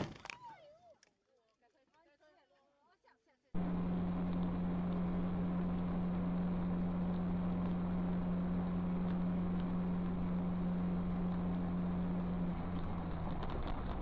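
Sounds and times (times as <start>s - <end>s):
constant low hum: 3.6s - 14.0s
vehicle noise inside car: 3.6s - 14.0s.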